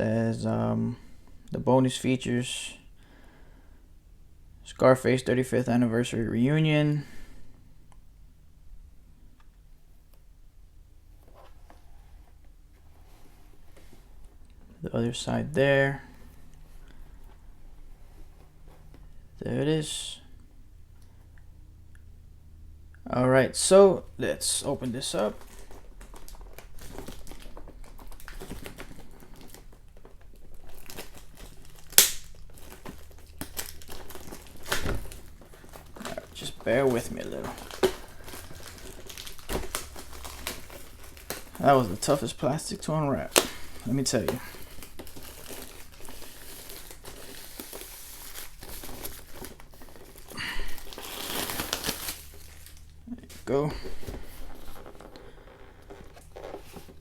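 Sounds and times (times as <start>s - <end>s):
plastic shrink-wrap crinkling: 24.6s - 57.0s.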